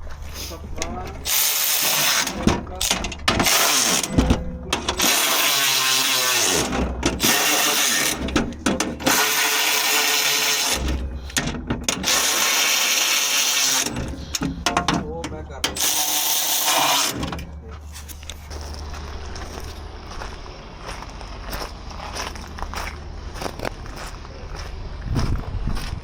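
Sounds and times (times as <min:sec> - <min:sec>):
power tool running in bursts: 0:01.2 - 0:02.4, 0:03.4 - 0:08.4, 0:09.0 - 0:11.4, 0:12.0 - 0:14.4, 0:15.7 - 0:17.4.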